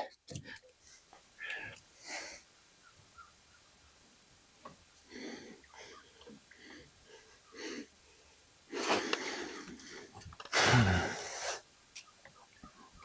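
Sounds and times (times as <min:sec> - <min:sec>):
man breathing hard: 0:05.1 - 0:11.6
man groaning: 0:10.6 - 0:11.2.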